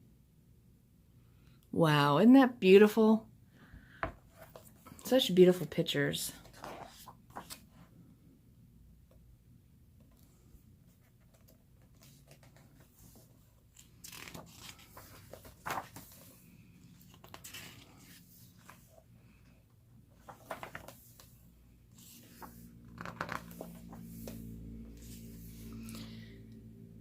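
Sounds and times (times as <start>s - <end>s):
pages turning: 6.4s - 7.8s, 10.9s - 19.1s, 20.1s - 26.0s.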